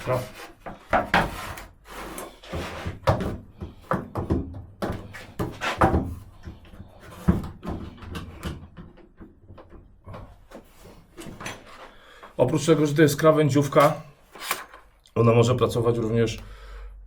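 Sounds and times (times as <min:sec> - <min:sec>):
wooden board knocks and thuds: 0:00.7 - 0:01.4, 0:02.9 - 0:09.4.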